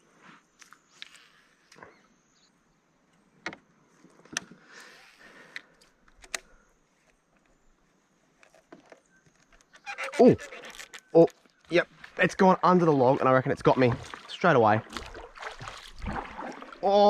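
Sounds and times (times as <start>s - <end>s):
fishing gear clicks and knocks: 8.3s - 11.7s.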